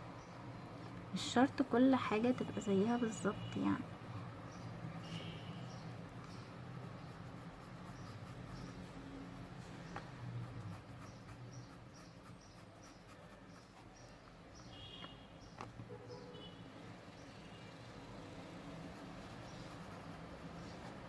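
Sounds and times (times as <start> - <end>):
pencil scratching on paper: 6.6 - 14.1, 18.5 - 21.0.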